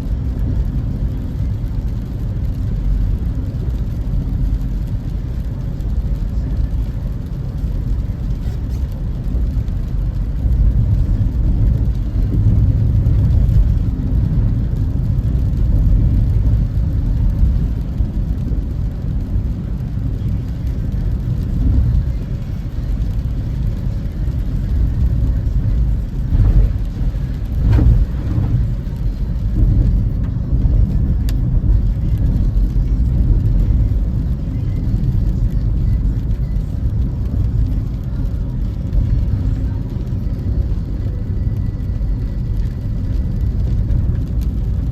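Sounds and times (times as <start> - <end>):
car tyre and engine rumble: 0.0 - 44.9.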